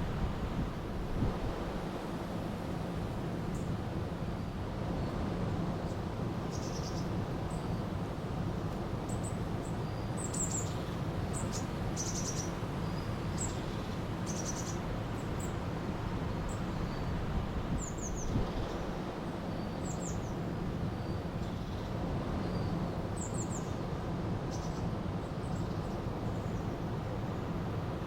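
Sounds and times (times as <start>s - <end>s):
songbirds chirping and trilling: 9.0s - 27.6s.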